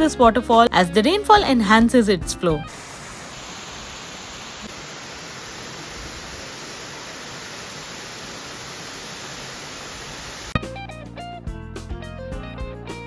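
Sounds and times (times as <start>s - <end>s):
waterfall rushing: 2.7s - 10.6s.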